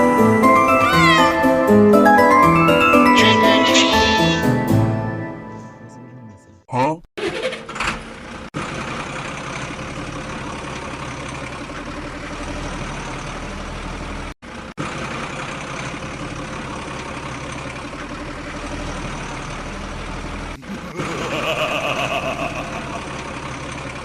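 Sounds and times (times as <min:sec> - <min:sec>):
vehicle engine idling: 0:08.0 - 0:20.6, 0:22.4 - 0:24.0.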